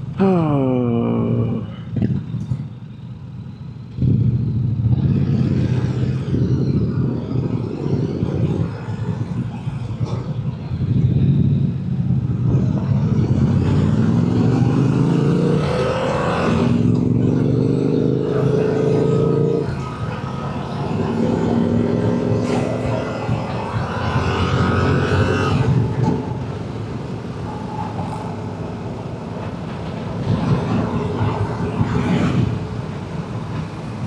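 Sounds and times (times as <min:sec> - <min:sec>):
motorcycle engine running: 0:03.9 - 0:05.7.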